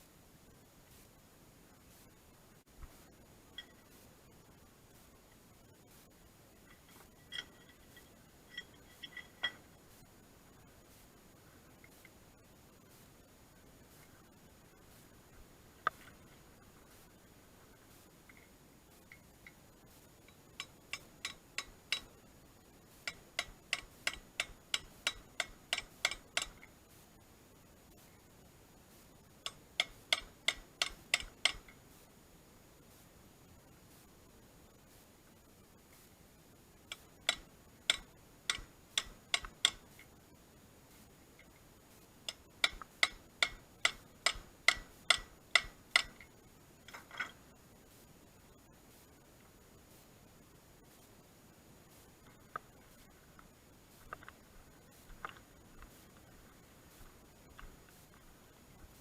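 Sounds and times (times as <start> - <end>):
hammer tapping metal: 20.6 - 22.1, 23.0 - 26.7, 29.5 - 31.7, 36.9 - 39.8, 42.3 - 46.3.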